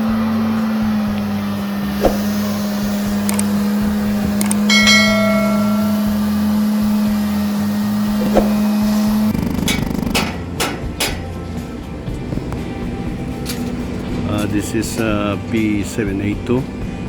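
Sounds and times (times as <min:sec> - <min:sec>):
machine hum: 0:00.1 - 0:10.6
metallic ringing: 0:04.6 - 0:07.0.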